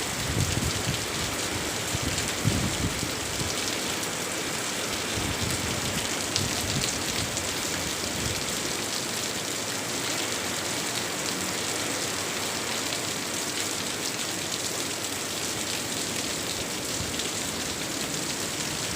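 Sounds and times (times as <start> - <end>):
heavy rain pouring: 0.0 - 18.9.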